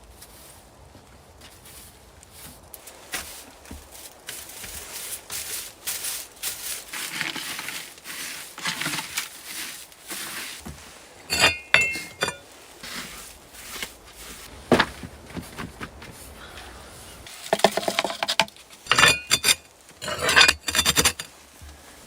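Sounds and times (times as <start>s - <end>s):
rustling and scraping handling: 0.0s - 22.0s
hard objects clinking: 11.3s - 12.4s.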